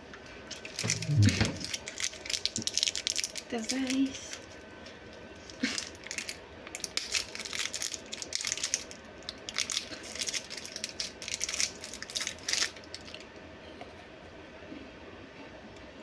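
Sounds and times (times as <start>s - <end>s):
plastic snack wrapper crinkling: 0.5s - 4.6s, 5.4s - 13.3s.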